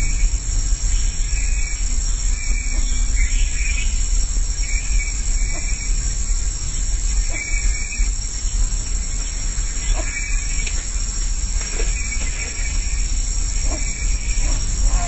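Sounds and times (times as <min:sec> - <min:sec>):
high insect drone: 0:00.0 - 0:15.0
low rumble: 0:00.0 - 0:15.0.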